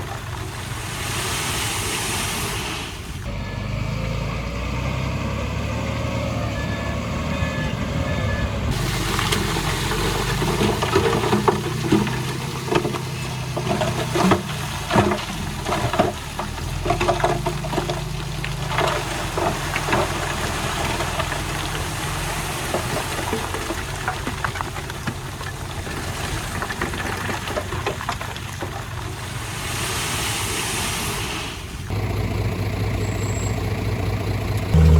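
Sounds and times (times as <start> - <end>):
diesel engine running: 3.1 - 25.8, 31.8 - 34.9.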